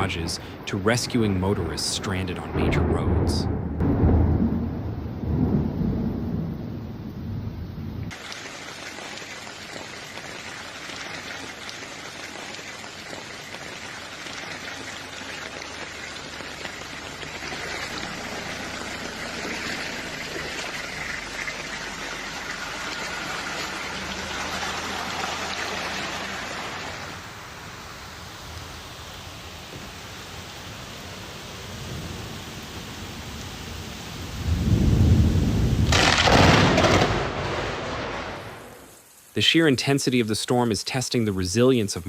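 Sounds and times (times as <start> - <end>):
heavy rain pouring: 0.0 - 42.0
loud low rumble: 2.3 - 8.1.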